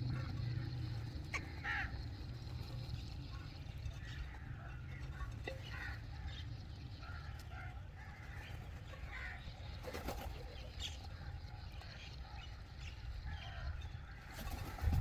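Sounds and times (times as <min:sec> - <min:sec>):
low steady rumble: 0:00.0 - 0:09.8
bird calls: 0:00.0 - 0:15.0.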